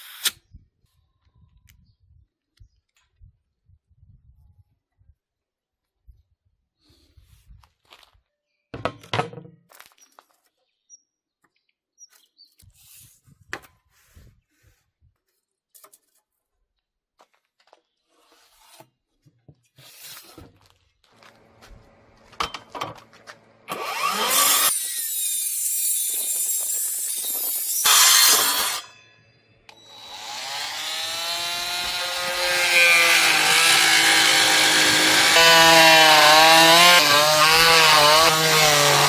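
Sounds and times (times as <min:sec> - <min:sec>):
power tool motor whining: 0:00.0 - 0:00.4, 0:21.2 - 0:29.0, 0:29.7 - 0:39.0.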